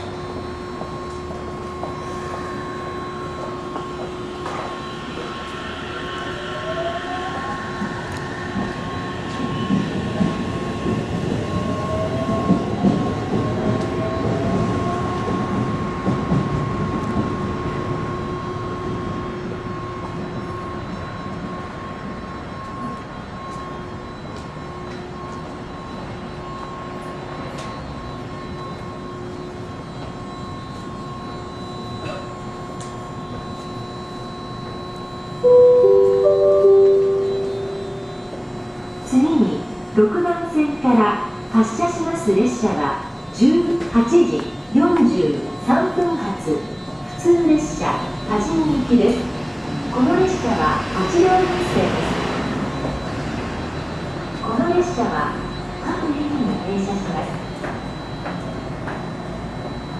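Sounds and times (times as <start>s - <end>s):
train equipment humming: 32.0s - 41.8s.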